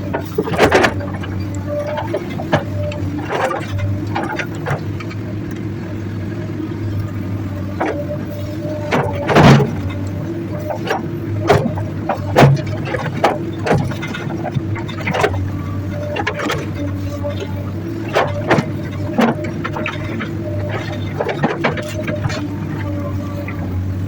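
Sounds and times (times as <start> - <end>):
excavator diesel engine running: 0.0 - 24.0
bucket clanking on rock: 8.8 - 10.0.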